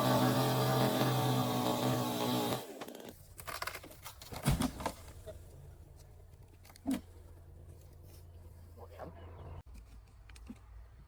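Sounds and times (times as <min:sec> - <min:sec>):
chainsaw at full throttle: 0:00.0 - 0:02.9.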